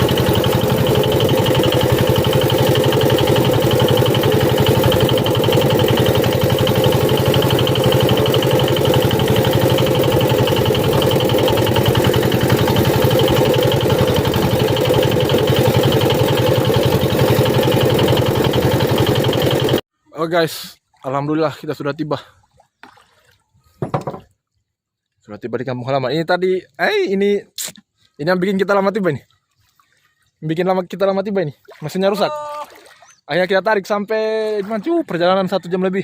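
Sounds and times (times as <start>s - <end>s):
boat engine pulsing: 0.0s - 19.8s, 30.6s - 36.0s.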